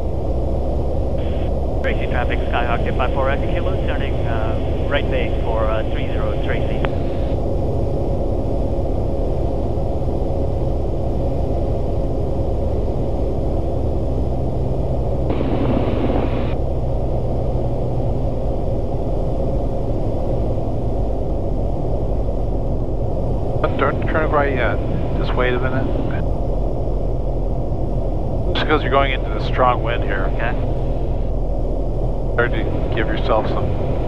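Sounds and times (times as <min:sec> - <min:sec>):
aircraft engine and propeller drone: 0:00.0 - 0:34.0
intercom hiss: 0:01.2 - 0:07.4.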